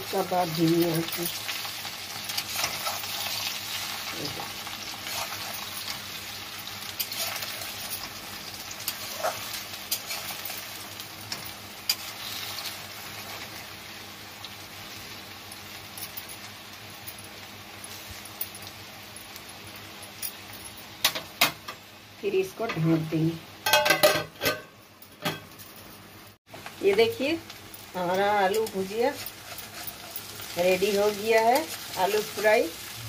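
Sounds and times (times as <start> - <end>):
potatoes sizzling in oil: 0.0 - 23.6, 25.4 - 33.0
spatula scraping and clicking pan: 2.2 - 3.5, 28.6 - 30.6.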